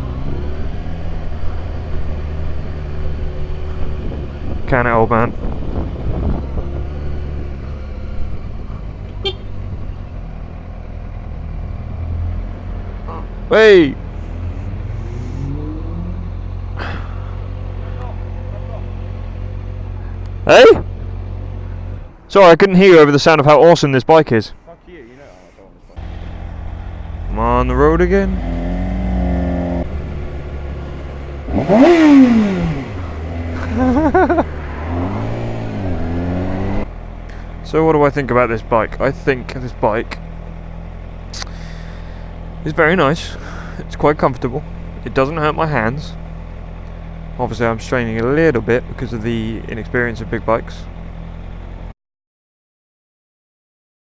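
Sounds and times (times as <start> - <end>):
motorcycle engine revving: 0.0 - 22.1, 26.0 - 37.6
motorcycle engine idling: 8.4 - 11.5, 36.9 - 51.8.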